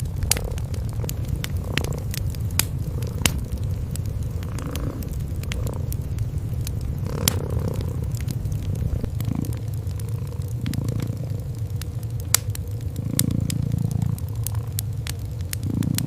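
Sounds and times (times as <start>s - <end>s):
cats purring: 0.0s - 16.0s
wood fire crackling and popping: 0.0s - 16.0s.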